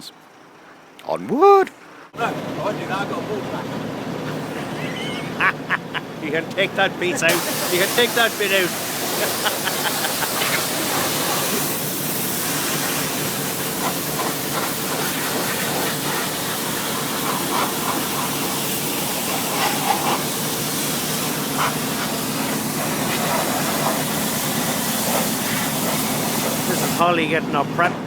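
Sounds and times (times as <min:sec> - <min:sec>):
pressure washer spraying water: 0:06.8 - 0:27.3.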